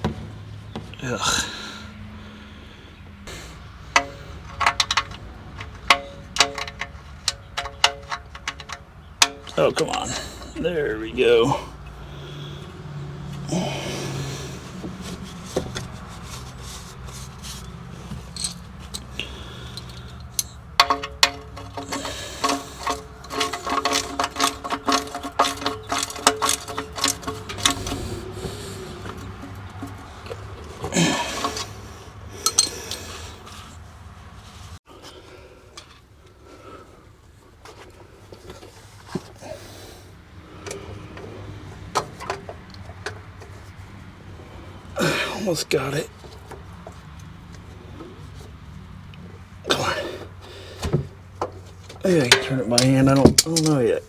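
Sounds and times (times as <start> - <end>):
hand tool clicking and knocking: 3.3 - 10.6, 14.4 - 33.6, 49.7 - 53.9
ratchet wrench clicking: 18.3 - 30.0.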